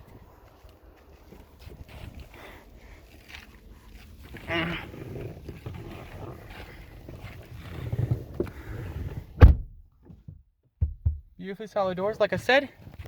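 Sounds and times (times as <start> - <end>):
car door handling rumble: 9.2 - 11.4.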